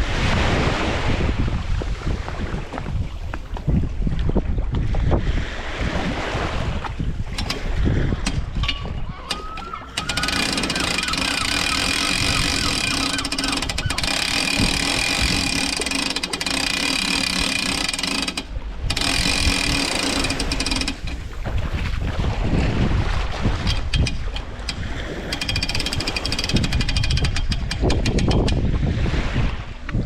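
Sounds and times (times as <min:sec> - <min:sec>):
motor running with high whine: 0:09.2 - 0:21.9.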